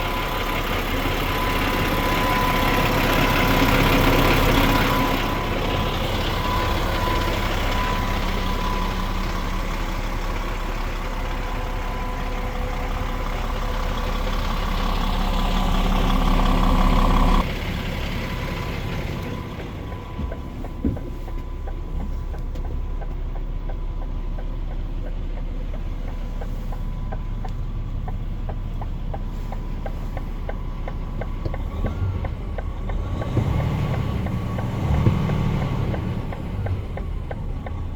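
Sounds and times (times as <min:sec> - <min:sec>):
diesel truck engine running: 0:00.0 - 0:37.9.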